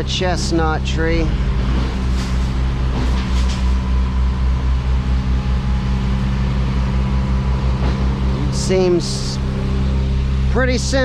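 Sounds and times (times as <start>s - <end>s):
large vehicle engine idling: 0.0s - 11.0s.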